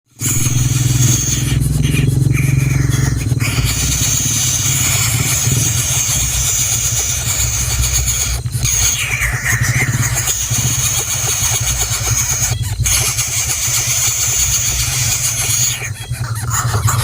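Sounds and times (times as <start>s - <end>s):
engine-like low rumble: 0.1s - 17.0s
high-pitched whine: 0.1s - 17.0s.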